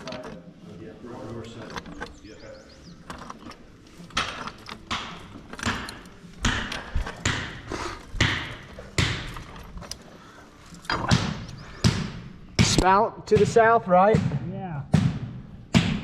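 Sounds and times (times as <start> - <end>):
heavy knocks ringing in rooms: 8.2 - 9.4.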